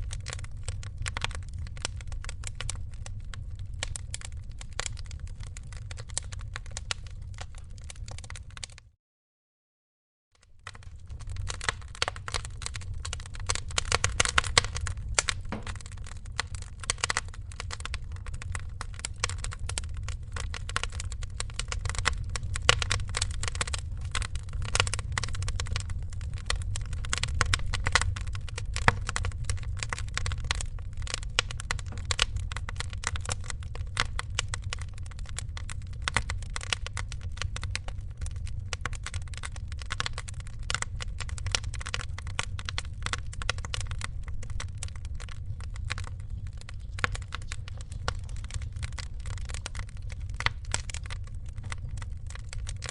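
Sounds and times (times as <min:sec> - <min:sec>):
wood fire crackling: 0:00.0 - 0:08.8, 0:10.4 - 0:52.9
low rumble: 0:10.8 - 0:36.4.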